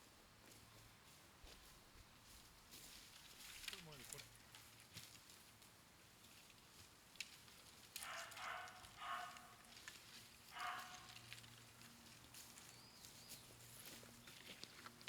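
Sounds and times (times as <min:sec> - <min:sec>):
faint animal calls: 0:08.0 - 0:09.8, 0:10.5 - 0:11.4.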